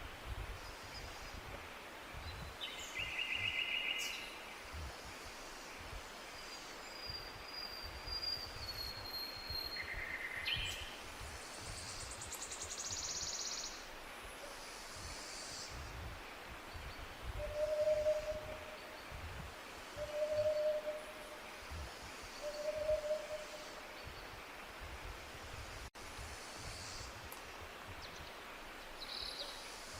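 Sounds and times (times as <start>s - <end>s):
faint outdoor hiss: 0.0s - 29.9s
bird long thin whistle: 7.1s - 10.7s, 17.4s - 18.8s.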